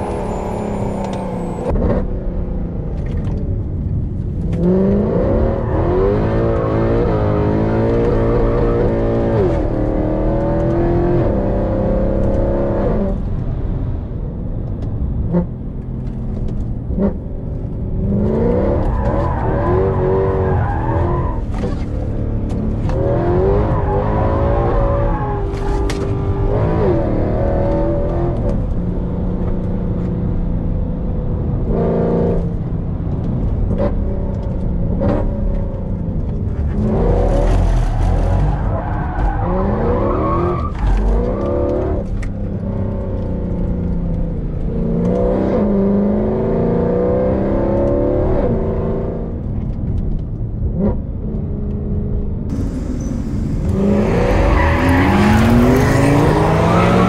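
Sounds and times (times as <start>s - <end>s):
exhaust cracks: 52.5s - 56.7s
car engine revving: 52.5s - 57.0s.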